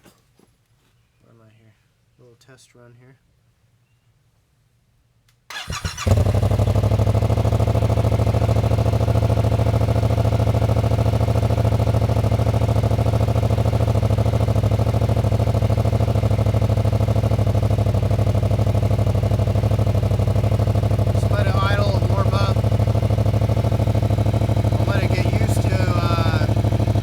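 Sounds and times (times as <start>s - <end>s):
motorcycle engine starting and idling: 5.5s - 27.0s.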